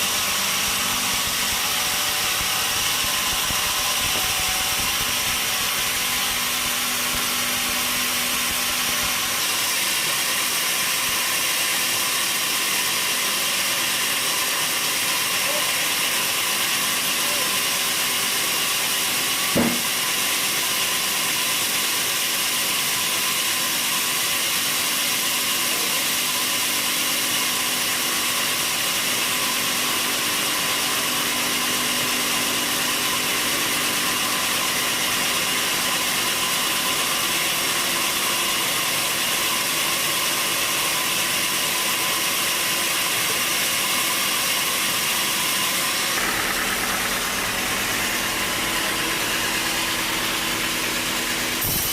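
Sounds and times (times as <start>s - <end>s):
constant machine hum: 0.0s - 51.9s
sawmill machinery hissing: 0.0s - 51.9s
sharp knock: 19.5s - 20.0s.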